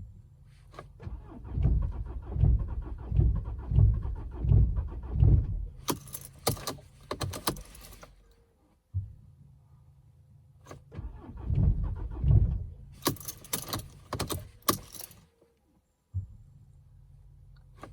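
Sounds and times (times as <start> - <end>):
diesel engine cranking on starter: 0.8 - 8.2, 10.7 - 15.3
metallic clicking and jangling: 5.8 - 8.1, 13.0 - 15.2.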